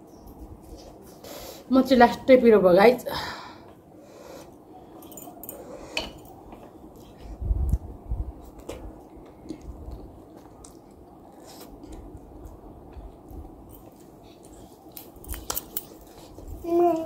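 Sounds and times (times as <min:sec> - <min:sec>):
chewing noodles: 0:06.8 - 0:15.1.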